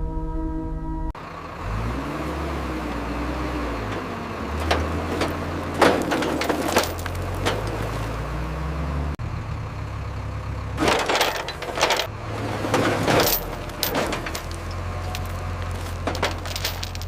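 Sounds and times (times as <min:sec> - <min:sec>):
vehicle engine running: 0:01.2 - 0:17.0
sharp knocks and clunks: 0:03.8 - 0:08.2, 0:10.8 - 0:17.0.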